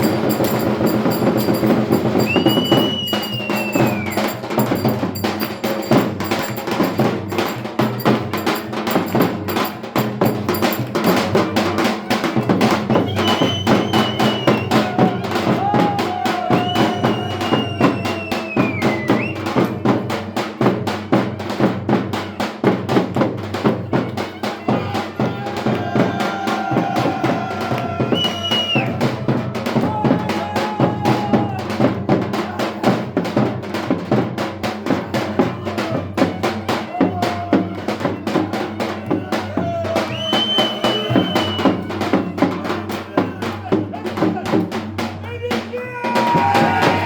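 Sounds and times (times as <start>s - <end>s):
melody instrument bending notes: 0.0s - 11.4s
drum fast steady beat: 0.0s - 47.0s.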